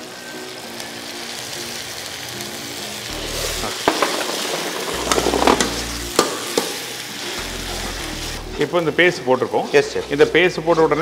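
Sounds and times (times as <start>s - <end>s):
paste sizzling in hot oil: 0.0s - 11.0s
metal ladle scraping pan: 3.2s - 6.9s.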